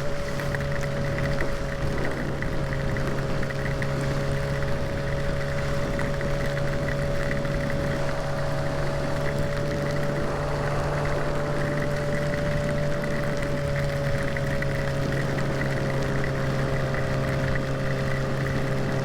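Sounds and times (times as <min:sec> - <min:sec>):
motorcycle engine cruising: 0:00.0 - 0:19.0
wind noise: 0:04.4 - 0:19.0.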